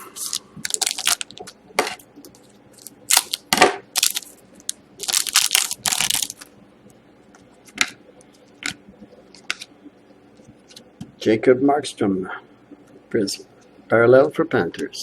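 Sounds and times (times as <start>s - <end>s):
packaging crinkling: 0.0s - 1.6s, 2.4s - 6.5s.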